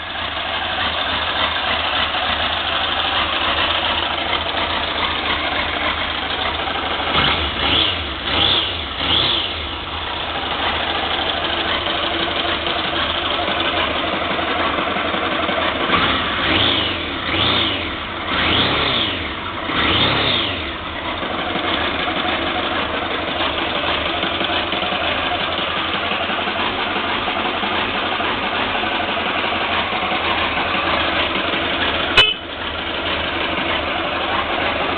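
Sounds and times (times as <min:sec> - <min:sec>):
motorcycle engine idling and revving: 0:00.0 - 0:34.9.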